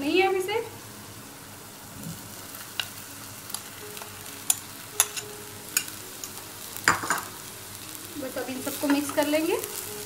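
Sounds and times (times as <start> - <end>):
rice sizzling in oil: 0.0 - 10.0
metal spoon clicking on pan: 4.5 - 6.0.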